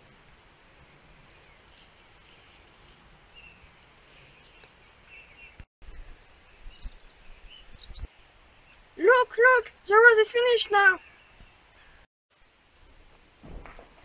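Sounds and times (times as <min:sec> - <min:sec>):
distant birds chirping: 0:00.0 - 0:12.1.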